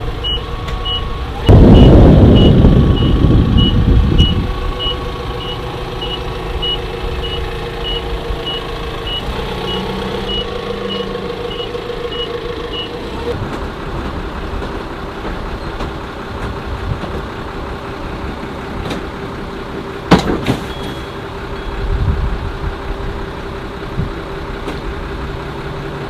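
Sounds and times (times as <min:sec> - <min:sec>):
vehicle backup alarm beeping: 0:00.0 - 0:13.3, 0:20.6 - 0:22.0
engine running: 0:00.0 - 0:26.0
loud burst of noise: 0:01.4 - 0:04.8.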